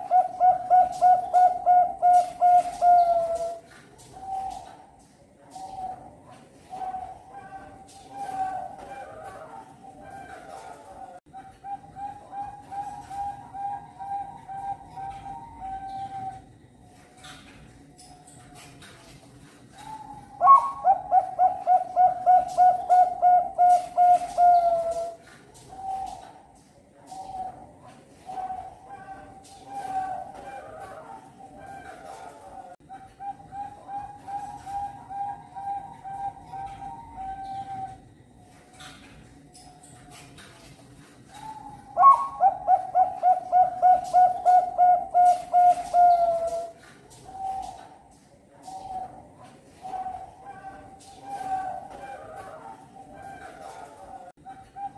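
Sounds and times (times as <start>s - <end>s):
dove cooing song: 0.0s - 17.5s, 19.6s - 39.3s, 41.2s - 54.9s.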